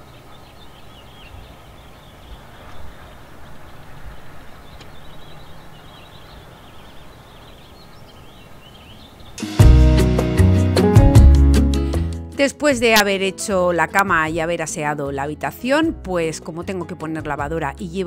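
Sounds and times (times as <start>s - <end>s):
small birds chirping: 0.0s - 9.5s
loud music: 9.4s - 12.3s.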